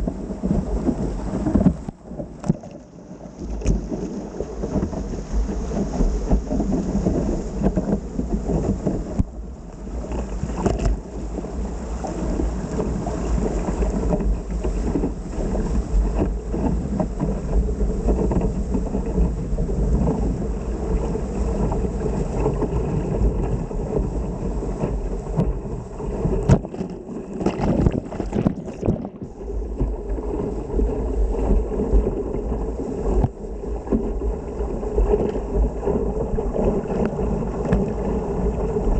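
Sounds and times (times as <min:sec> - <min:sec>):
water splashing around boat: 0:00.0 - 0:38.9
wind buffeting microphone: 0:00.0 - 0:38.9.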